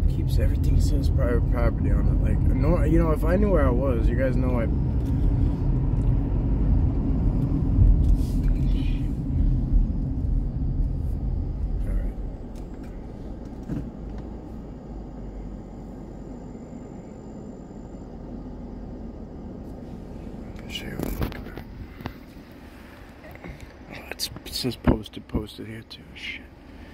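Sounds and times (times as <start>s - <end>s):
car road and engine rumble: 0.0s - 26.9s.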